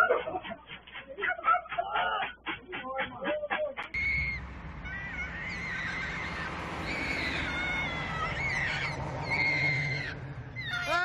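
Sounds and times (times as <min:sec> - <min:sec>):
high wavering animal cries: 0:04.0 - 0:11.0.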